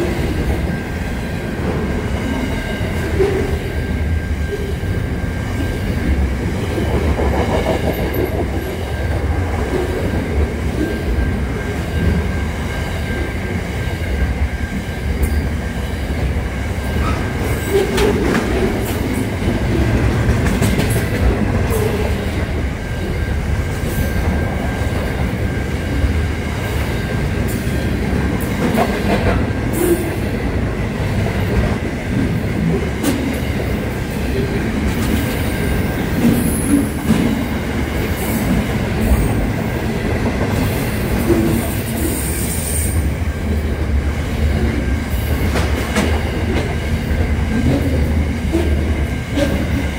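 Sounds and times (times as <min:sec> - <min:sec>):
train wheels rumbling on rail: 0:00.0 - 0:49.9
wheels clicking over rail joints: 0:17.0 - 0:22.6.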